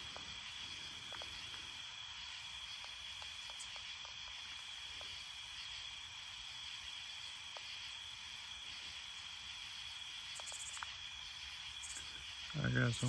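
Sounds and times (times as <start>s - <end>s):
faint ticks: 0.0s - 1.8s, 2.7s - 5.2s, 7.5s - 7.7s, 10.3s - 11.0s, 11.8s - 12.6s
night insects buzzing: 0.0s - 13.0s.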